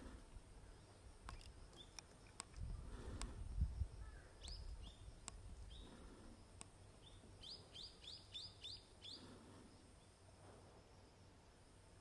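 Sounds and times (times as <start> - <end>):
bird chirping: 0.6 - 2.4, 4.0 - 6.0, 6.8 - 9.4.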